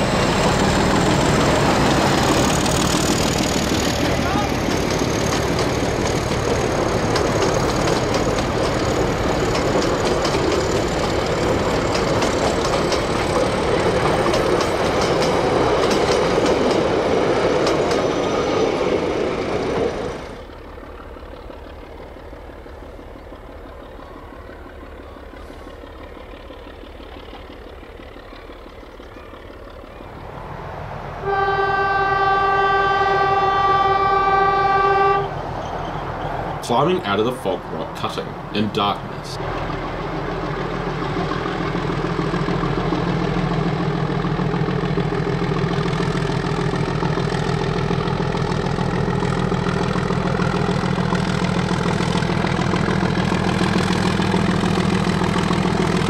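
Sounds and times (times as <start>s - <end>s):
clicking wheels on rail: 0.0s - 30.3s, 37.2s - 56.0s
distant locomotive rumble: 0.0s - 56.0s
locomotive horn blast: 31.2s - 35.4s.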